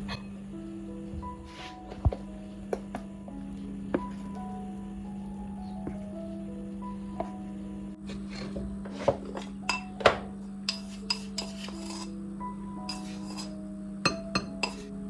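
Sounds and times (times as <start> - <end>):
dishes and cutlery clinking: 0.0 - 0.4, 8.1 - 12.2, 12.9 - 14.9
soft background music: 0.0 - 15.0
scraping of dishes: 8.1 - 12.2, 12.9 - 13.6, 14.4 - 14.9.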